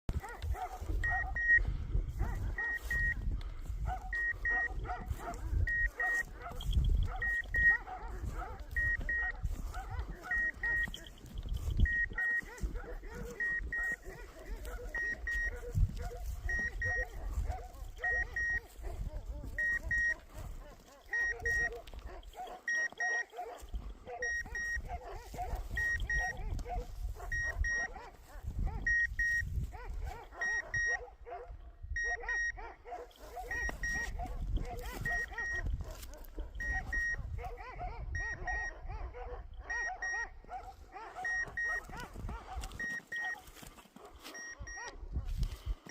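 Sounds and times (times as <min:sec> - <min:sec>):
dogs barking: 0:00.1 - 0:45.9
beeper collar double beeps: 0:00.9 - 0:03.2, 0:04.1 - 0:18.7, 0:19.4 - 0:20.3, 0:21.1 - 0:26.5, 0:27.2 - 0:28.0, 0:28.9 - 0:29.5, 0:30.4 - 0:31.0, 0:32.0 - 0:32.6, 0:33.5 - 0:35.6, 0:36.6 - 0:37.2, 0:38.2 - 0:38.8, 0:39.7 - 0:40.3, 0:41.2 - 0:42.1, 0:42.8 - 0:43.4, 0:44.3 - 0:44.9.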